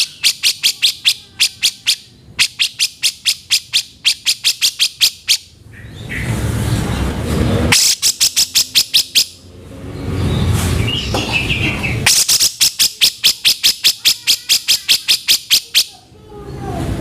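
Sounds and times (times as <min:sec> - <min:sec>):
bulbul harsh rattling call: 0:00.0 - 0:05.5, 0:07.7 - 0:09.4, 0:12.0 - 0:15.9
soft bird chirp: 0:00.0 - 0:06.3, 0:07.8 - 0:16.6.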